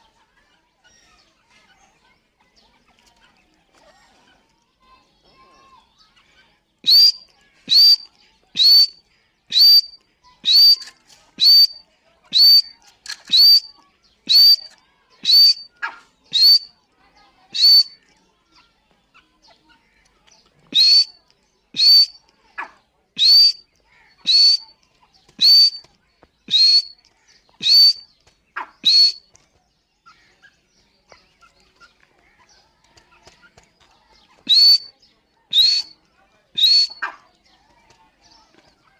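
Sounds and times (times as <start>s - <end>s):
francolin sharp piercing calls: 6.9s - 8.0s, 8.6s - 11.8s, 12.4s - 12.7s, 13.3s - 13.7s, 14.3s - 15.7s, 16.3s - 16.7s, 17.6s - 18.0s, 20.8s - 21.2s, 21.8s - 22.2s, 23.2s - 23.6s, 24.3s - 24.7s, 25.4s - 25.8s, 26.5s - 27.0s, 27.6s - 28.0s, 28.8s - 29.2s, 34.5s - 34.9s, 35.5s - 35.9s, 36.6s - 37.0s.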